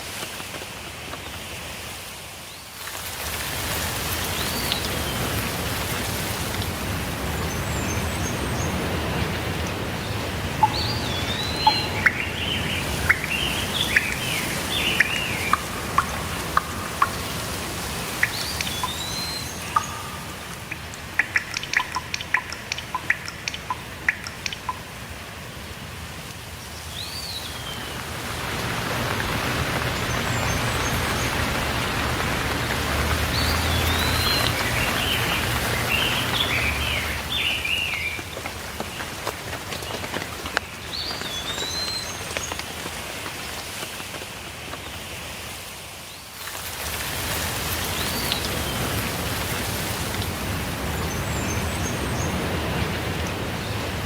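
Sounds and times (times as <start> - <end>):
rain falling: 0.0 - 54.0
raindrop taps: 3.3 - 7.1, 7.9 - 25.1, 27.8 - 45.1, 47.0 - 53.5
warbling birdsong: 6.8 - 25.0, 26.6 - 39.2, 40.6 - 42.6, 47.7 - 49.7, 50.4 - 54.0
slurred bird whistle: 10.6 - 23.4.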